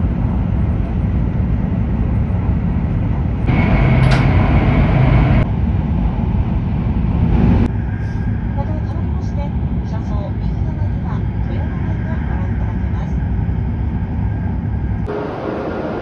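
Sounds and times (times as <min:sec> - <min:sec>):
train rumble with rushing air: 0:00.0 - 0:16.0
high whine: 0:03.4 - 0:05.5.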